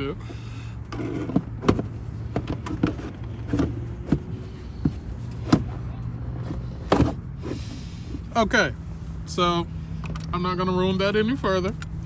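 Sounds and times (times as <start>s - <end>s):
clicks and knocks of car parts: 0.3s - 8.3s.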